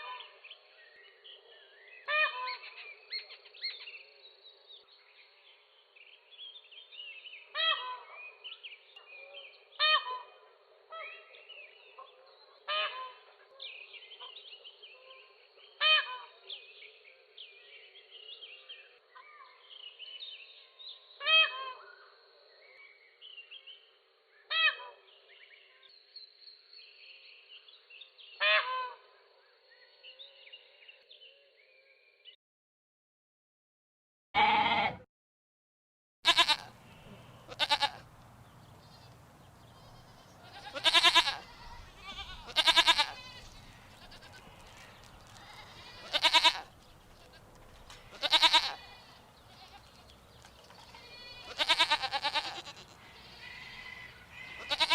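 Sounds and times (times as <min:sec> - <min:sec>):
goats bleating: 0:34.4 - 0:35.0, 0:36.3 - 0:38.1, 0:39.6 - 0:50.1, 0:50.8 - 0:54.9
animal calls: 0:39.8 - 0:50.1, 0:50.8 - 0:54.9.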